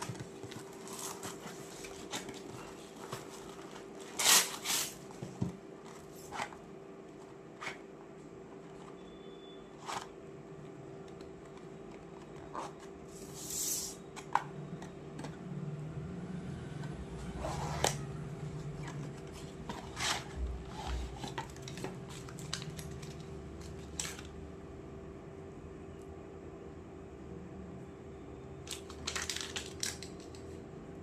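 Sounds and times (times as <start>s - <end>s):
packaging rustling: 0.0s - 6.6s, 18.5s - 24.3s
faint steady hum: 0.0s - 31.0s.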